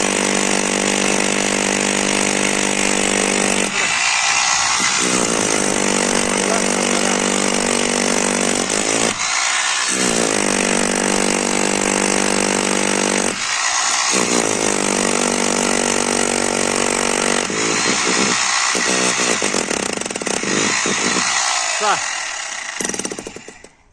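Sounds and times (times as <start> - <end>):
power tool motor running: 0.0 - 23.7.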